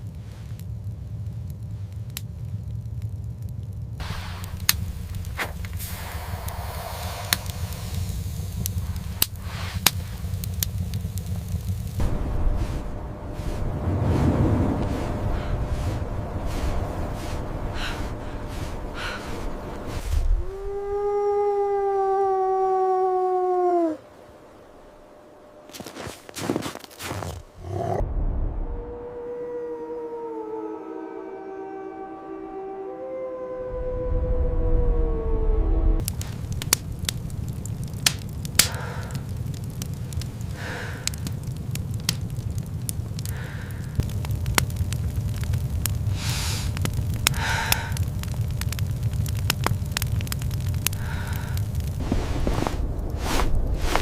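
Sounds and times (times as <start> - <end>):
sharp crackles and pops: 0.0 - 22.4, 24.5 - 28.0, 35.9 - 54.0
low rumbling noise: 0.0 - 54.0
soft hissing puffs: 0.1 - 0.8, 4.0 - 20.6, 38.6 - 41.6, 43.1 - 44.1, 46.0 - 48.3, 50.6 - 54.0
wolf howling: 14.8 - 24.2, 28.6 - 36.0
wailing tone: 28.6 - 36.0.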